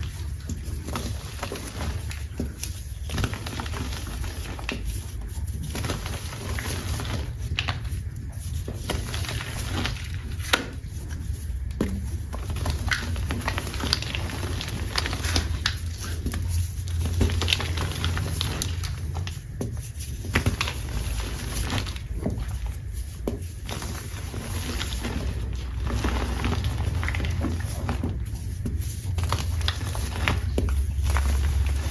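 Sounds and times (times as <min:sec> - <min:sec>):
chalk crumbling by hand: 0:00.0 - 0:31.9
steady low hum: 0:00.0 - 0:31.9.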